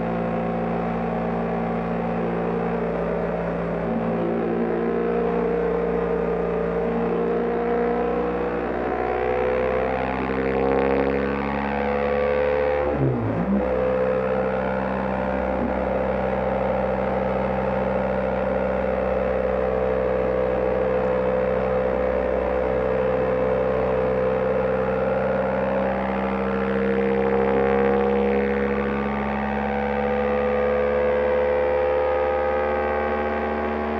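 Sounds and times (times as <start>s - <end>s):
motorcycle engine cruising: 12.3s - 14.5s.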